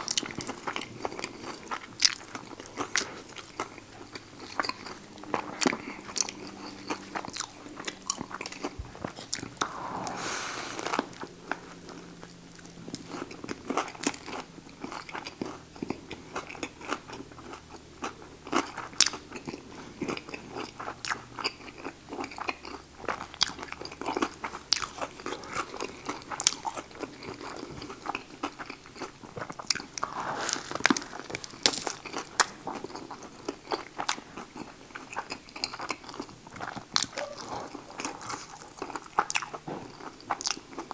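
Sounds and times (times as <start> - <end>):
biting and chewing crunches: 11.8 - 40.9.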